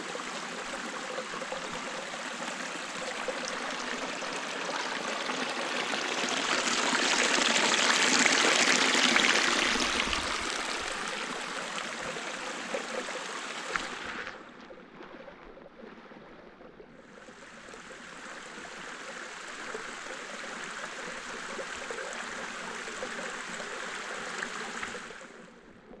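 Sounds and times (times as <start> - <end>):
stream water rushing: 0.0 - 14.5.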